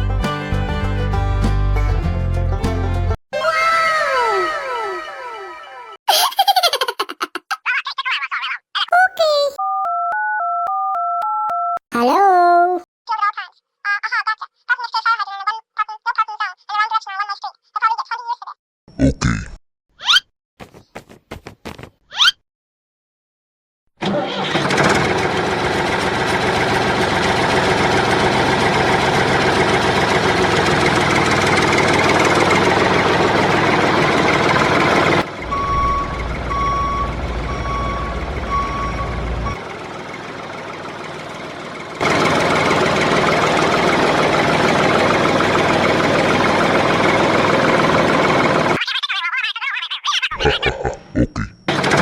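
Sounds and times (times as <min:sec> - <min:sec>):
vehicle engine running: 0:24.6 - 0:48.8, 0:51.7 - 0:52.0.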